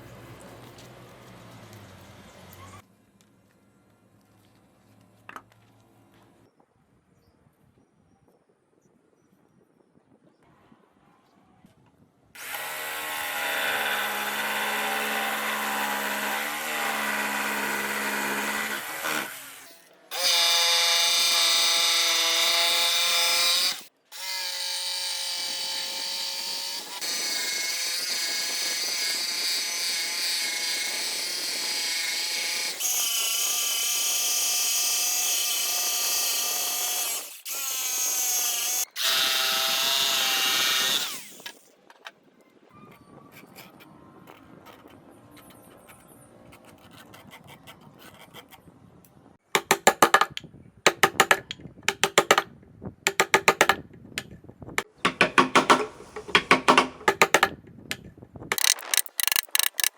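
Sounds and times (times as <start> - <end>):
power tools cutting wood: 12.4 - 41.7, 50.9 - 52.4, 53.1 - 53.8, 54.8 - 57.5, 58.5 - 59.9.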